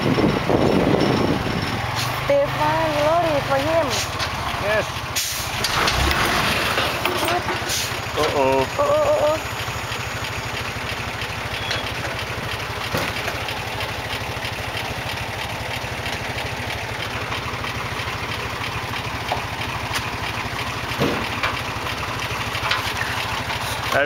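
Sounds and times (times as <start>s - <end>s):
motorbike engine running: 5.7s - 24.0s.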